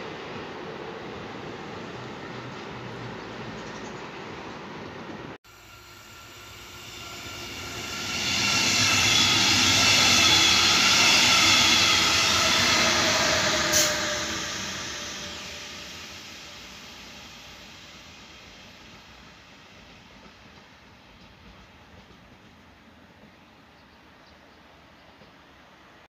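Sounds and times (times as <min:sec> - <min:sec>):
train wheel and rail noise: 0:00.0 - 0:26.0
steady train whine: 0:04.1 - 0:23.3.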